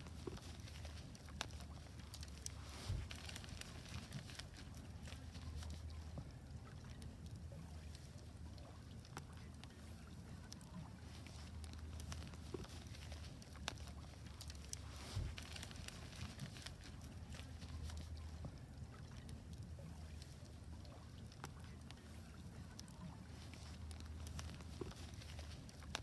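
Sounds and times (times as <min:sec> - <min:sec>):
wood fire crackling and popping: 0:00.0 - 0:06.1, 0:10.5 - 0:18.4
fire low rumble: 0:00.0 - 0:26.0.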